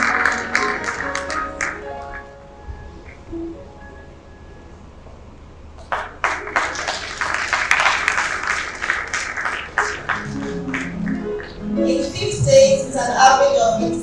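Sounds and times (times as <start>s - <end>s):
audience applauding: 0.0s - 2.2s, 5.8s - 11.7s.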